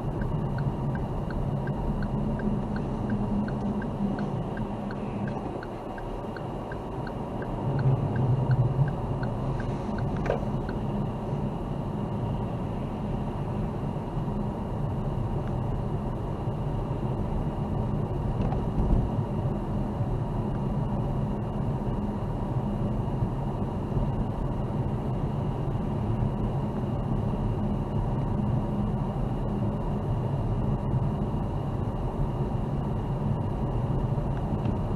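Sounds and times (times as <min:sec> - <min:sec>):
light regular ticking: 0:00.0 - 0:10.8
car engine and tyre noise: 0:00.0 - 0:34.9.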